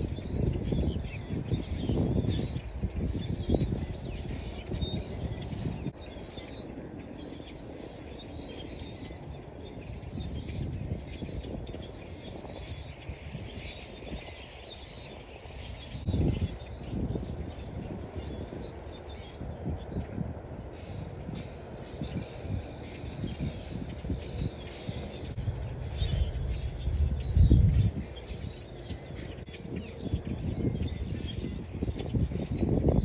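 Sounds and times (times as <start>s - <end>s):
small birds chirping: 0.0s - 33.0s
low background rumble: 2.6s - 33.0s.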